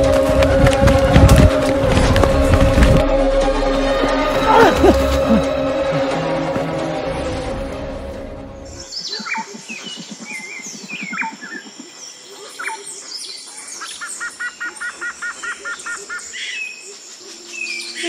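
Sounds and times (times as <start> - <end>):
music: 0.0 - 8.9
birds chirping and whistling: 8.7 - 18.0.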